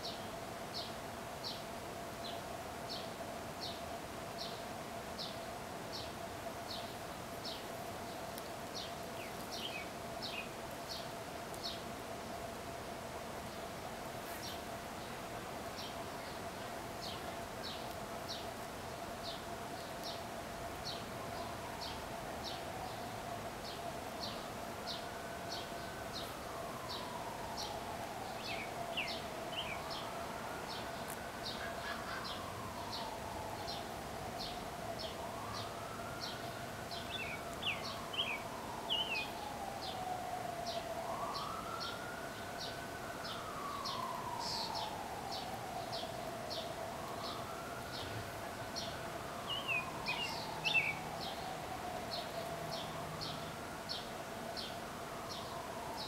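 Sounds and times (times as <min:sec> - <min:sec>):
bird chirping: 0:05.2 - 0:11.8, 0:20.8 - 0:56.0
wailing siren: 0:15.6 - 0:56.0.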